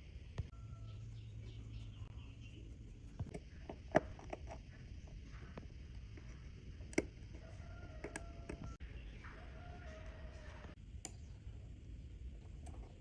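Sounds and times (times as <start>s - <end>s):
small tools clicking on watch parts: 6.8s - 8.7s.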